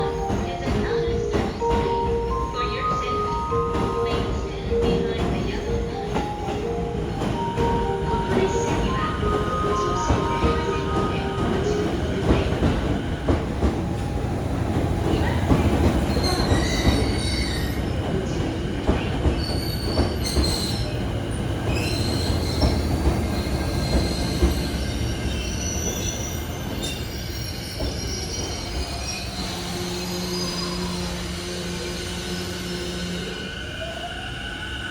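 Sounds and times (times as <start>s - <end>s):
train braking: 0.0s - 14.2s, 15.0s - 34.9s.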